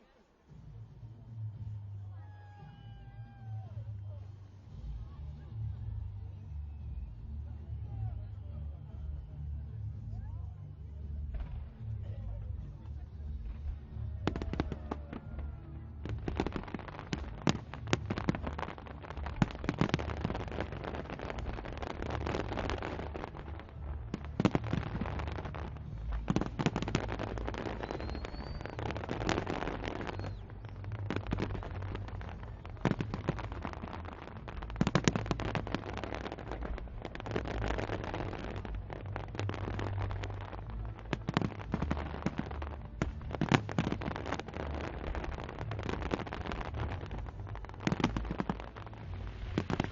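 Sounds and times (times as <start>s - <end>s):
low rumble of fireworks: 0.0s - 49.9s
fireworks crackling: 10.8s - 49.9s
fireworks bangs: 13.4s - 49.9s.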